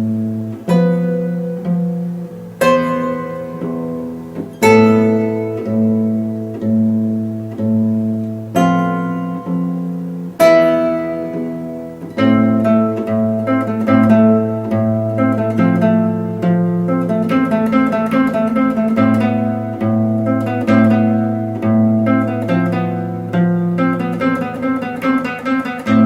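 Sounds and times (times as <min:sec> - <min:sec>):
acoustic guitar strumming and picking: 0:00.0 - 0:26.0.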